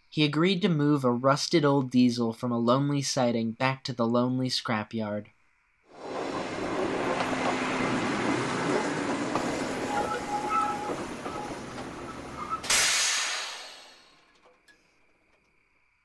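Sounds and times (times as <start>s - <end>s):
train rumbling along rails: 5.9s - 14.2s
faint squealing tones: 9.3s - 12.7s.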